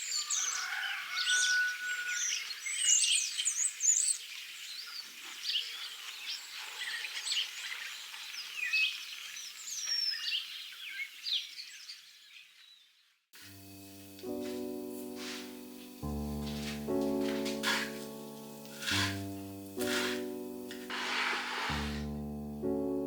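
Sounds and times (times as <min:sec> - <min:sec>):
songbirds chirping: 0:00.0 - 0:13.2
piano music: 0:13.4 - 0:23.0.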